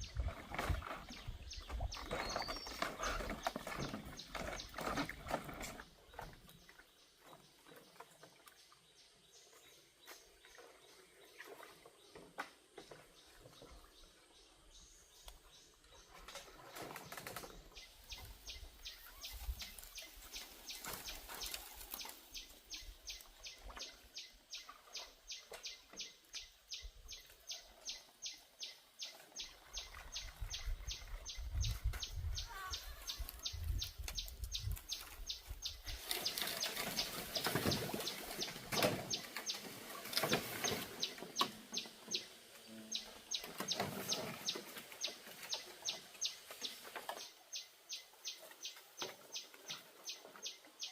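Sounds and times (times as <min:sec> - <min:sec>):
birds chirping rhythmically: 0:00.8 - 0:05.0, 0:17.5 - 0:50.9.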